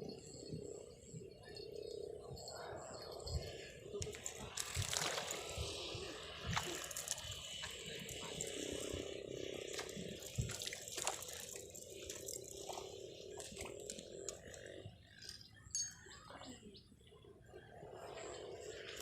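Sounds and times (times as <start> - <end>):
faint steady hum: 0.0 - 19.0
water splashing and dripping: 4.1 - 5.6, 6.4 - 9.0, 9.6 - 14.4.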